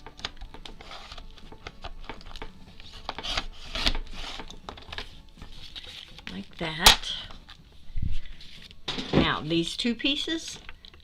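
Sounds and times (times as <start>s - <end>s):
paper being cut: 2.9s - 4.5s.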